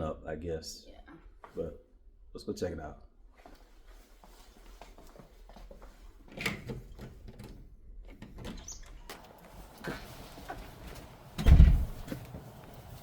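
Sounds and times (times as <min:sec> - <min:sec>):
door heavy thump: 0:11.4 - 0:12.2.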